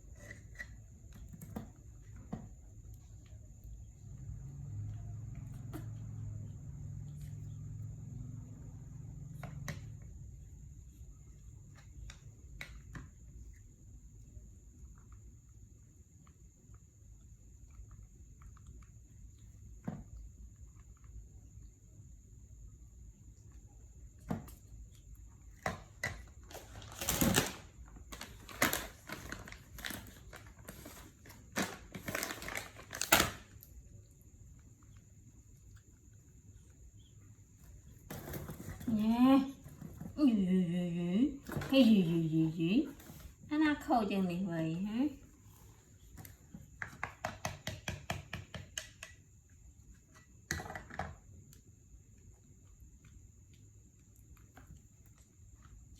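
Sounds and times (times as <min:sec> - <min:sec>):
food crinkling and crunching: 0:25.0 - 0:34.1.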